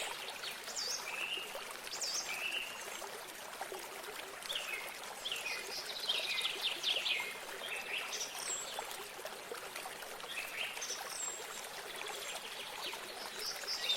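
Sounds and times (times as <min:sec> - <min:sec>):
stream of running water: 0:00.0 - 0:13.9.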